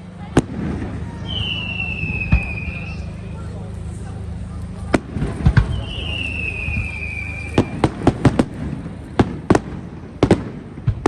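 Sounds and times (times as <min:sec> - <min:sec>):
firework bangs: 0:00.2 - 0:03.1, 0:04.8 - 0:11.0
firework whistle: 0:01.0 - 0:03.5, 0:05.5 - 0:08.8.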